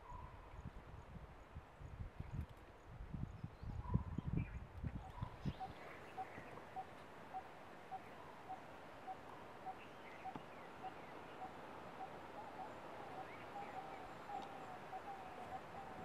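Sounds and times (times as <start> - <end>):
birds chirping: 5.1 - 16.0
wavering bird call: 5.6 - 16.0.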